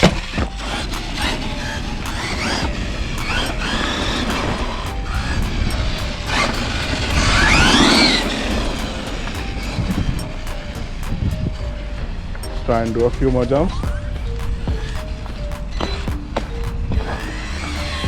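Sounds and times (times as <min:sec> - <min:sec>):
rc truck electric motor whine: 0:00.0 - 0:09.8, 0:17.2 - 0:18.0
background music: 0:00.0 - 0:18.0.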